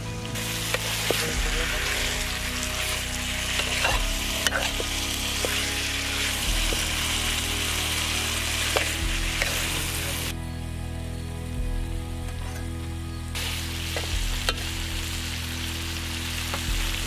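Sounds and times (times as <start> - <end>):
chicken sizzling in a pan: 0.0 - 10.4, 13.3 - 17.0
spoon scraping a metal pan: 0.7 - 6.8.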